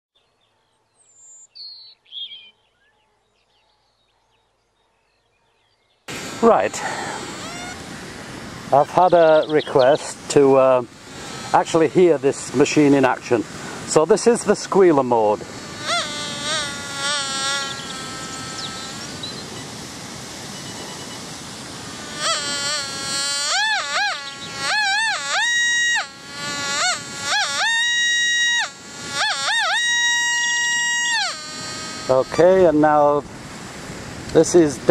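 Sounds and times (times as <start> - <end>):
birds singing: 0.2 - 7.8, 8.7 - 12.1, 17.3 - 19.8, 24.1 - 25.0
metal detector tone: 6.2 - 7.8, 20.5 - 21.3, 22.1 - 32.6.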